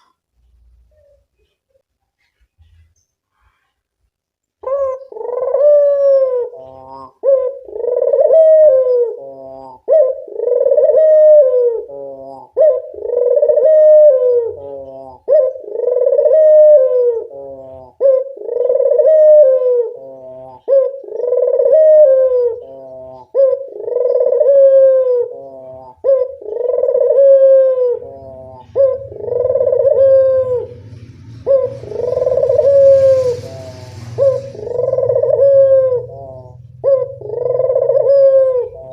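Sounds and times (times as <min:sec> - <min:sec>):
dove cooing: 0:04.6 - 0:38.9
low hum: 0:26.4 - 0:38.9.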